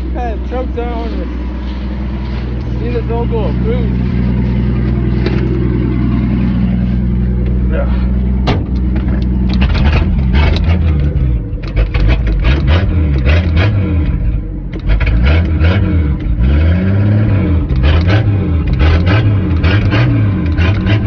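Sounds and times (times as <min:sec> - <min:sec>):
clattering and rattling: 0:08.3 - 0:15.3
small engine revving: 0:09.5 - 0:21.0.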